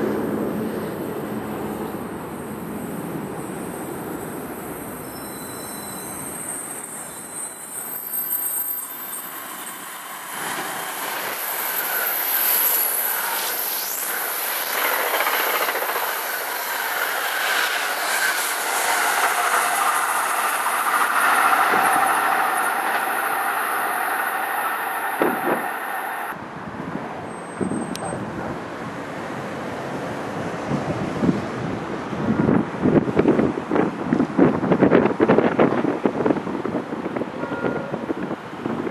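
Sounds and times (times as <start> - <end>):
train wheels rushing on rail: 0.0 - 26.4.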